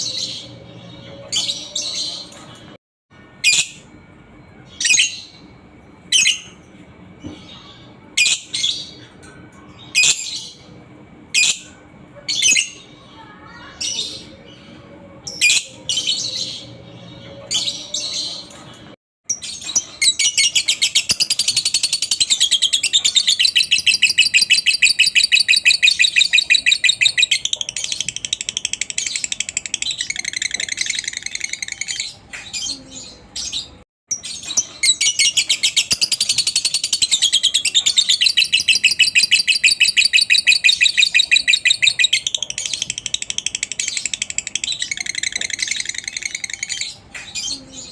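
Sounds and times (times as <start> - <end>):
bird chattering chirps: 19.3 - 33.3, 34.1 - 47.9.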